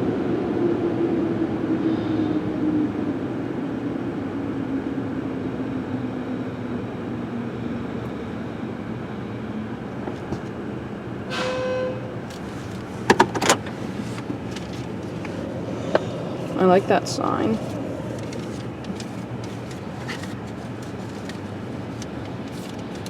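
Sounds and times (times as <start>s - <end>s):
brief beep: 11.3s - 12.1s.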